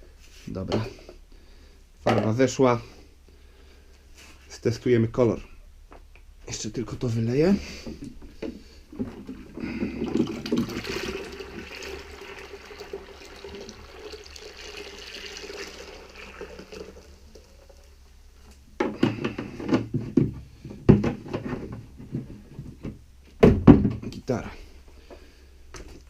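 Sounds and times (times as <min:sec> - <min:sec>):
water pouring and splashing: 0:09.0 - 0:18.1
knocks and clatter: 0:18.8 - 0:24.1.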